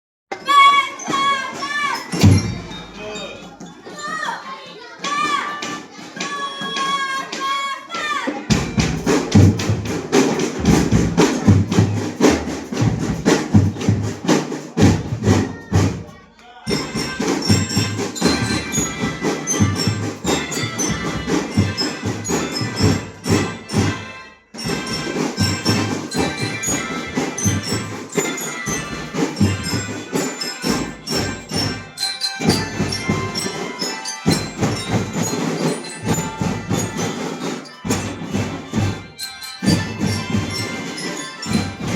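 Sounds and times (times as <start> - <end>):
drums and cymbals beating: 0.3 - 4.4, 8.3 - 41.9
high-pitched melodic instruments: 0.9 - 4.5, 16.7 - 41.9.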